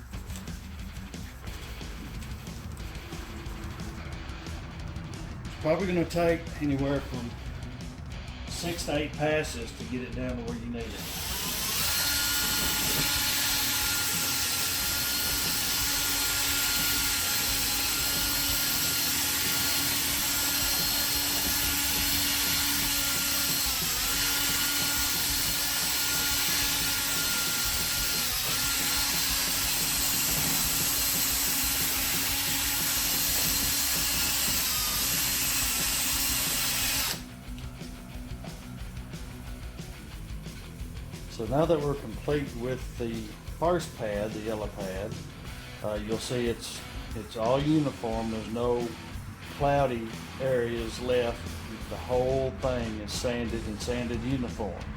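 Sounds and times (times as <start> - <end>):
electric drill sanding plastic: 10.0 - 37.6.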